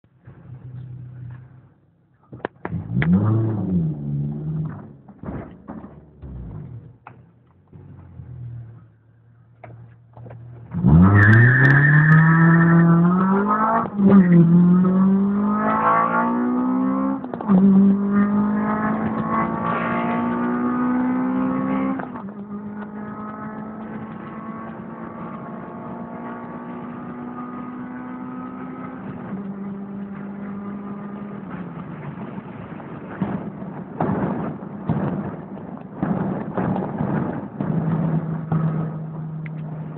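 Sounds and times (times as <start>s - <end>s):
car engine revving at full throttle: 2.6s - 4.9s, 10.2s - 35.4s, 36.0s - 39.9s.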